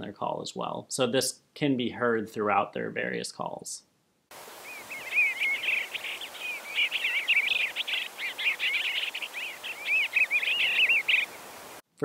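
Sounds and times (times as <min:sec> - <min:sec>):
steady hiss: 0:04.3 - 0:11.9
bird singing warbled notes: 0:04.6 - 0:11.4.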